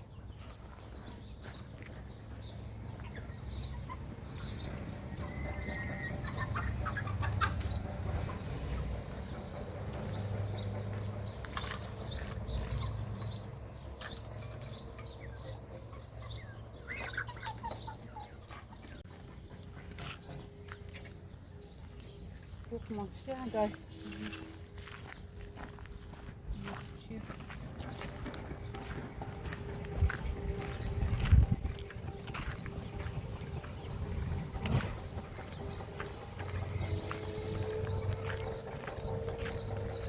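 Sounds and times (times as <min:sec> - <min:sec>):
small birds chirping: 0:00.0 - 0:40.0
low hum: 0:23.7 - 0:40.0.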